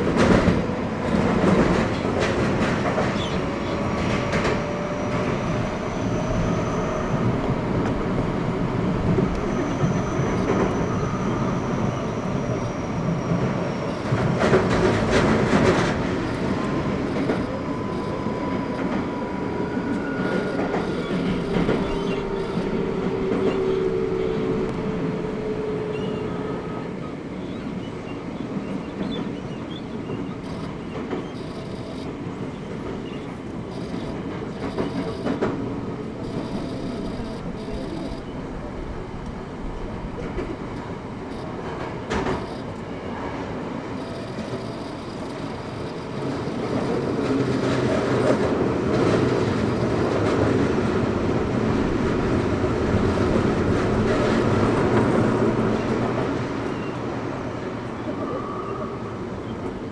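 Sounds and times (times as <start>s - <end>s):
train wheels rumbling on rails: 0.0s - 59.9s
faint thin whining tones: 36.1s - 38.6s.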